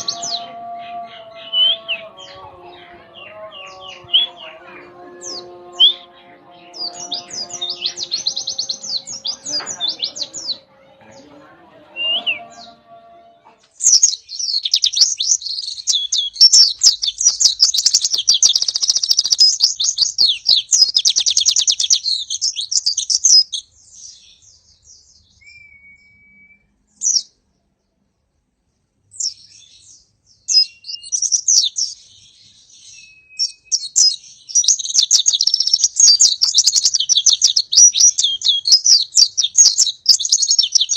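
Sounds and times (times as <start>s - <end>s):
bird chattering song: 0.0s - 11.4s, 13.6s - 26.2s, 29.1s - 40.9s
low steady tones: 0.0s - 13.2s.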